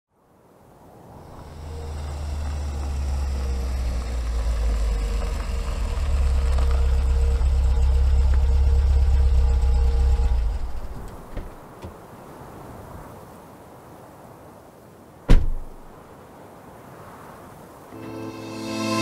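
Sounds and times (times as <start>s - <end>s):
car engine idling: 1.3s - 11.8s.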